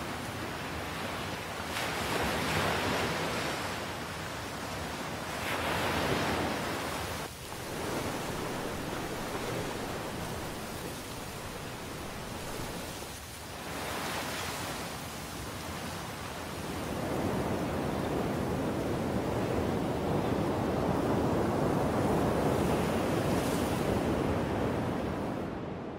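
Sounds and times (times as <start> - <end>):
ocean surf: 0.0 - 25.9
rushing wind: 5.5 - 14.1.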